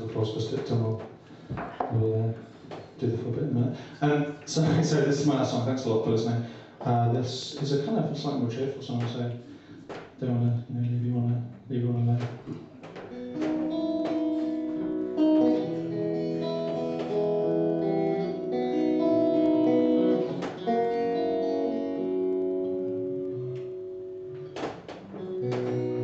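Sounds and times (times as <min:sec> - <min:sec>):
guitar strumming chords: 0:12.7 - 0:26.0.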